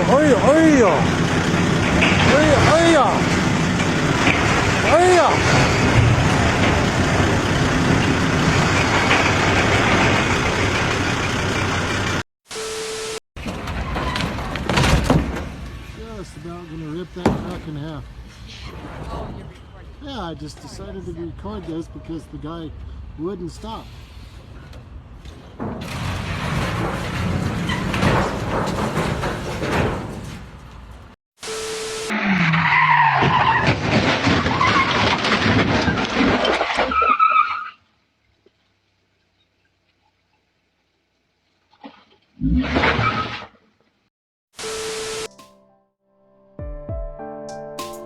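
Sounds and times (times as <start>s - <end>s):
loud rough noise: 0.0s - 12.2s
road noise: 0.0s - 12.2s, 13.5s - 31.2s.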